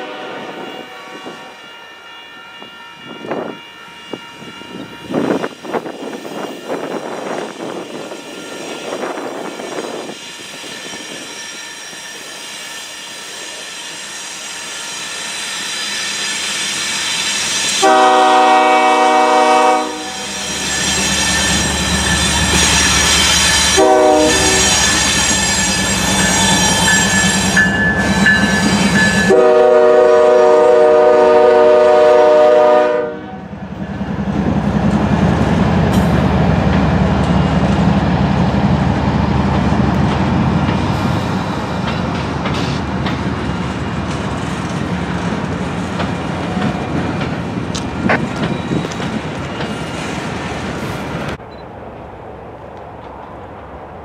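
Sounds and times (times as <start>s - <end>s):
train air horn: 0.0s - 5.5s, 17.8s - 20.8s, 23.6s - 25.4s, 28.7s - 33.5s.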